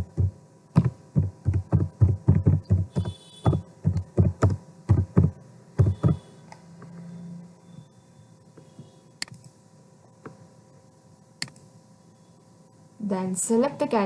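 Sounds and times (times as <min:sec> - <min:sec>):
typing on a keyboard: 0:00.0 - 0:06.2.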